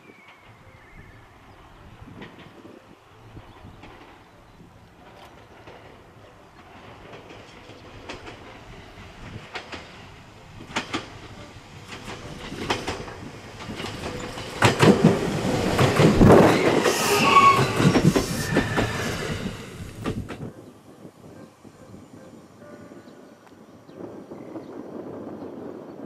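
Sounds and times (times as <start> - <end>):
wheels clattering over rail joints: 10.6 - 19.2
high wheel squeal: 16.4 - 19.7.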